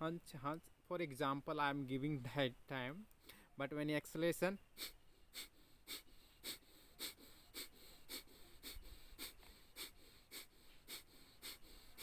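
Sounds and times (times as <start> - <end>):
forceful nasal exhalations: 4.8 - 12.0.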